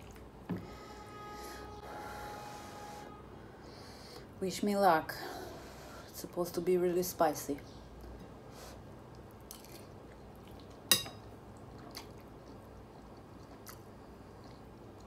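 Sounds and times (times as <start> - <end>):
person chewing food: 9.1 - 15.0.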